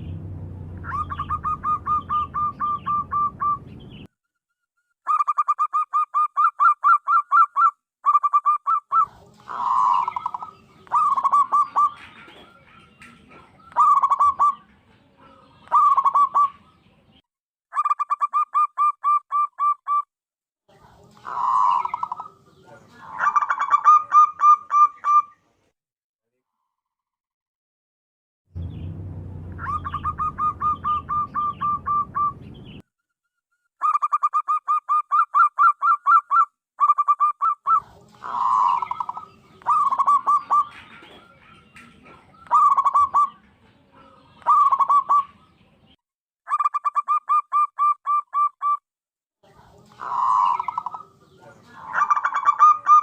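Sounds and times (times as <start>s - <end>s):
dove cooing: 0.8s - 3.7s, 5.1s - 16.8s, 21.1s - 25.4s, 29.6s - 32.4s, 36.9s - 45.5s, 49.8s - 53.0s.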